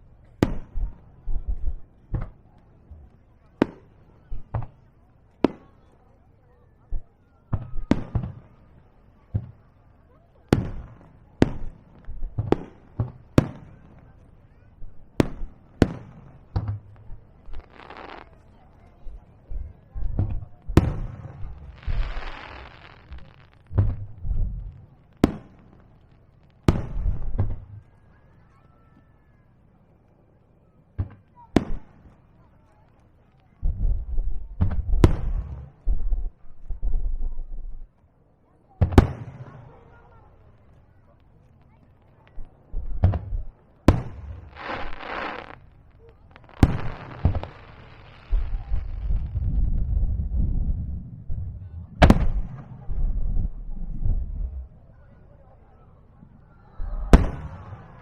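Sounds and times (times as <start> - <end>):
hissing crackle of fireworks: 0.0 - 30.1, 38.8 - 58.0
sharp firework crack: 15.2 - 18.4, 20.8 - 24.1, 43.0 - 50.3, 52.0 - 53.4, 56.9 - 58.0
small firework thump: 20.0 - 24.5, 42.2 - 47.7.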